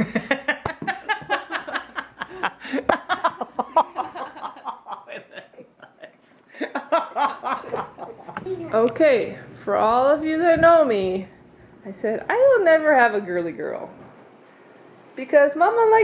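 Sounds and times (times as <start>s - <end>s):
people laughing: 0.0s - 8.6s.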